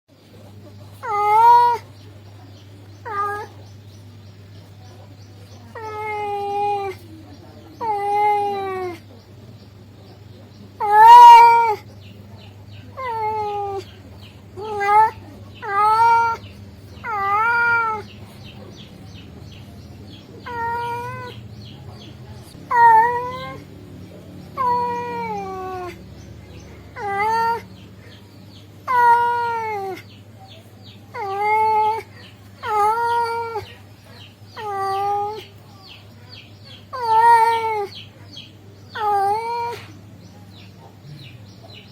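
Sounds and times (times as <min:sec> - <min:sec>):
cat meowing: 0:01.0 - 0:01.8, 0:03.0 - 0:03.5, 0:10.8 - 0:11.8, 0:14.6 - 0:16.4, 0:17.0 - 0:18.1, 0:20.4 - 0:21.4, 0:22.7 - 0:23.6, 0:24.6 - 0:26.0, 0:27.0 - 0:27.6, 0:31.1 - 0:33.6.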